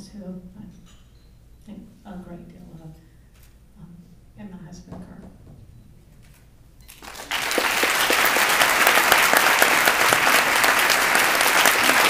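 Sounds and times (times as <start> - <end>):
audience applause: 7.0 - 12.0.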